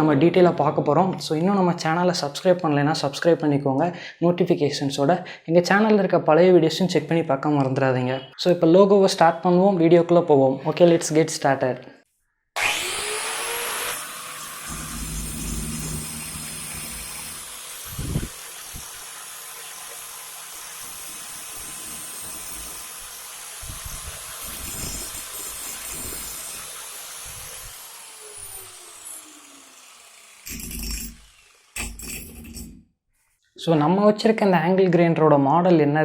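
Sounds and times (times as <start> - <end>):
angle grinder whining: 12.6 - 32.8.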